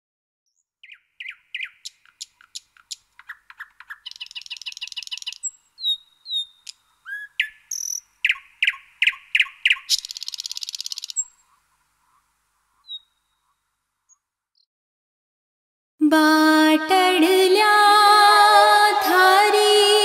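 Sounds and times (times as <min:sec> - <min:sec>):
songbirds chirping: 0:00.5 - 0:14.7.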